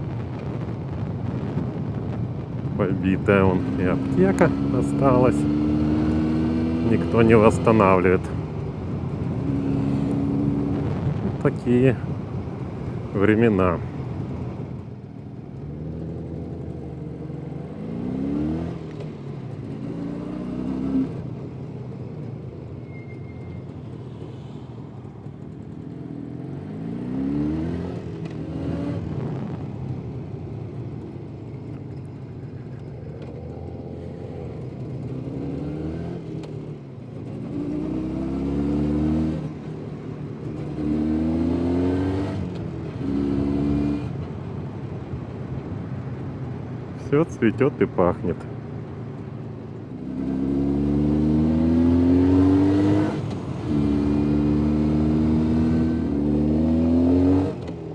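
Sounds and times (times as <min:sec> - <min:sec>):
motorcycle engine revving through gears: 0:03.3 - 0:11.4, 0:14.0 - 0:30.1, 0:31.1 - 0:44.6, 0:49.8 - 0:57.9.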